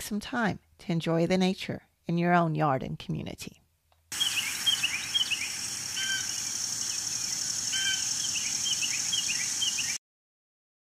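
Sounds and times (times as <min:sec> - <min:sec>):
birds chirping: 0:04.1 - 0:10.0
steady high hiss: 0:04.1 - 0:10.0
whistled bird calls: 0:04.2 - 0:10.0.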